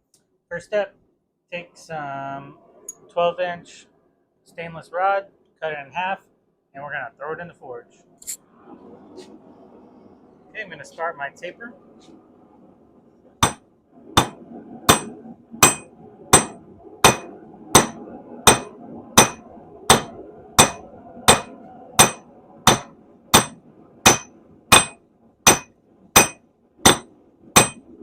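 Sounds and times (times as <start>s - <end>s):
faint steady hum: 0.0s - 28.0s
hammer striking metal on anvil: 14.2s - 27.9s.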